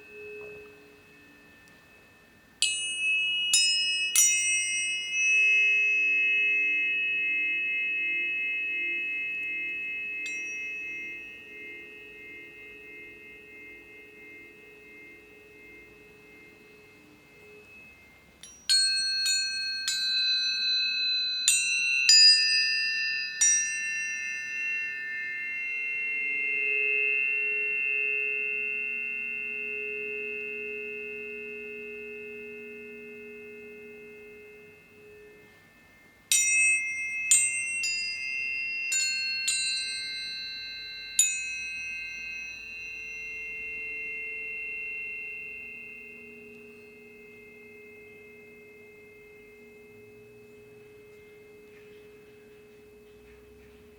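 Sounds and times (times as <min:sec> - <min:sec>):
tuning fork strike clicks: 0:00.0 - 0:01.9, 0:42.8 - 0:53.9
tuning forks ringing: 0:00.0 - 0:53.9.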